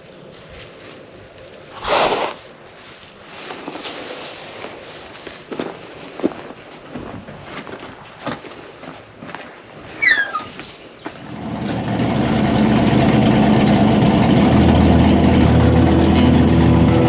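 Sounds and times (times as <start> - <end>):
high squeak falling in pitch: 10.0 - 10.5
engine running: 11.2 - 17.0.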